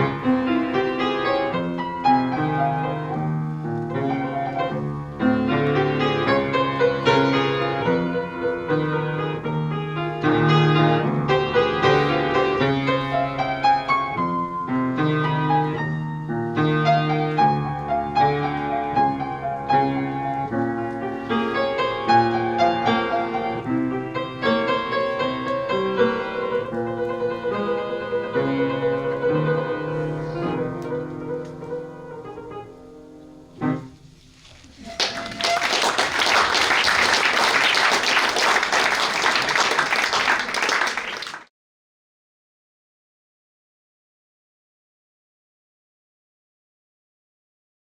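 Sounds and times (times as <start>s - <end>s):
solo piano: 0.0s - 41.1s
audience applause: 34.8s - 41.5s.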